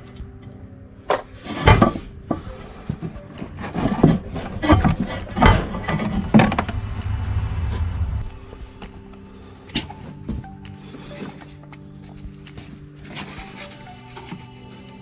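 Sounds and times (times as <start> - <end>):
knocks and scraping of parts: 1.1 - 9.0
low rubbing rumble: 2.1 - 10.6.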